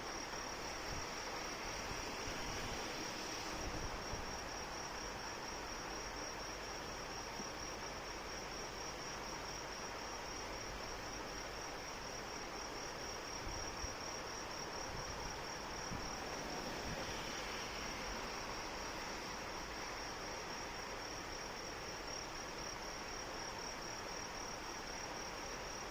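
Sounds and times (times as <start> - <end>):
rain hiss: 0.0 - 25.9.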